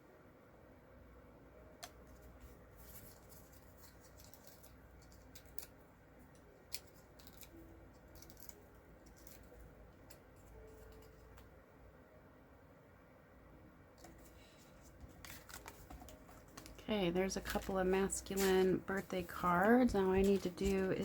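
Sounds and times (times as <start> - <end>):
scissors snipping cardstock: 6.7 - 11.4.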